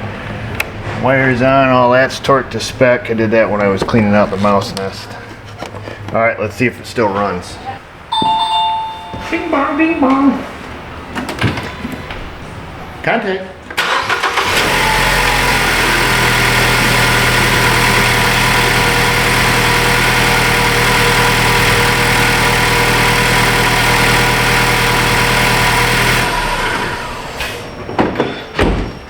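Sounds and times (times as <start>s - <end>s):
car engine idling: 13.8s - 27.7s.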